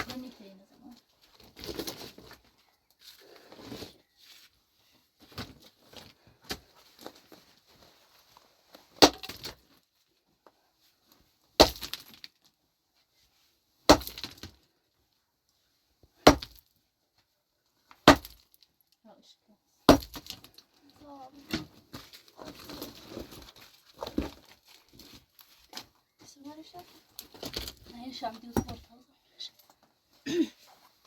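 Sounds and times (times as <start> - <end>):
clatter of loose material: 0.0 - 4.2, 20.2 - 29.0.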